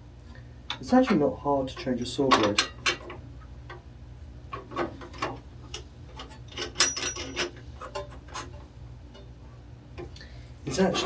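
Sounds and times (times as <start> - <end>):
steady low hum: 0.0 - 11.0
metal fittings clicking and clinking: 4.7 - 8.5.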